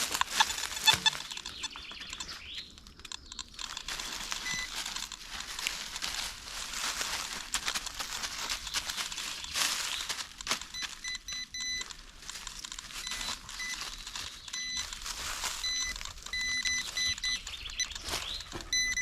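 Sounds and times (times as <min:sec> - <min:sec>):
scattered clicks: 0:00.0 - 0:05.8, 0:07.5 - 0:19.0
rustle of dry forest litter: 0:00.0 - 0:19.0
metal detector beeps: 0:00.1 - 0:02.6, 0:03.7 - 0:04.8, 0:10.6 - 0:11.9, 0:13.0 - 0:19.0.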